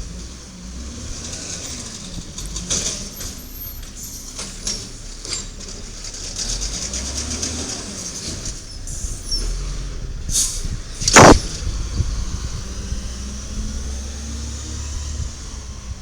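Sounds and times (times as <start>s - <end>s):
garbage truck diesel engine rumble: 0.0s - 11.0s
loud short burst of noise: 11.0s - 11.5s.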